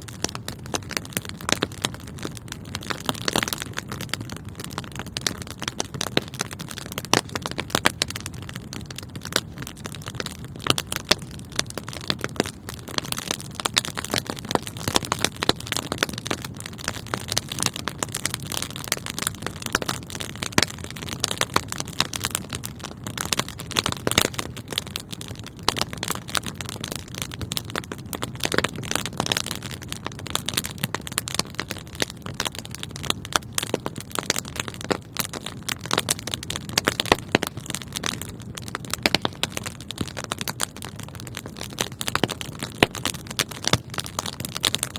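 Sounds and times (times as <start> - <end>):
low rumble of flames: 0.0 - 44.9
wood fire crackling and popping: 0.0 - 44.9.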